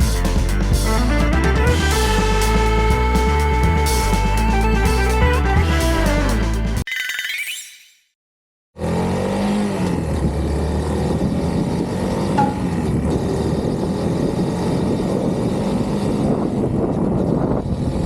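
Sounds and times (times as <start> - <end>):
motorcycle engine running: 0.0 - 6.8, 10.0 - 18.0.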